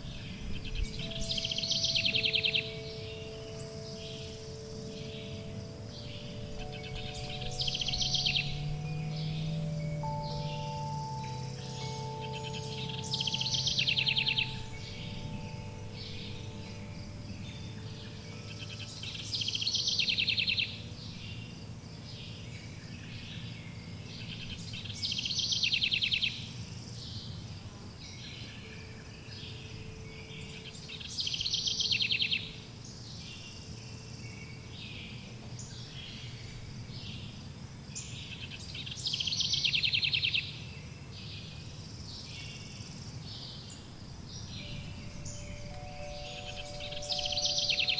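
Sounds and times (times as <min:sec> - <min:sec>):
chime tones: 0:00.0 - 0:21.4, 0:44.6 - 0:47.9
songbird trilling: 0:00.0 - 0:27.3, 0:28.2 - 0:37.3, 0:38.0 - 0:47.9.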